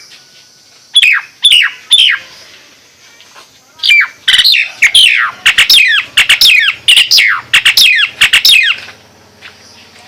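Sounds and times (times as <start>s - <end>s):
myna calling: 0.9s - 2.4s, 3.8s - 9.0s.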